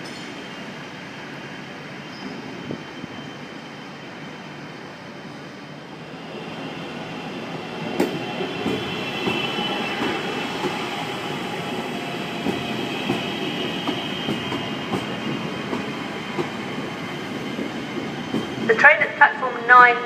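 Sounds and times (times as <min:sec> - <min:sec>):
train wheels clicking on rail joints: 0:12.3 - 0:18.7.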